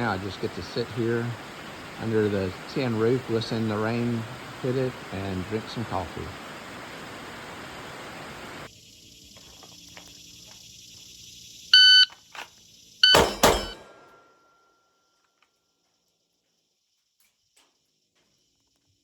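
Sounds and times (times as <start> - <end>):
rain on a tin roof: 0.0 - 8.7
electronic beep: 11.8 - 12.1
loud sharp knocks: 13.1 - 13.9.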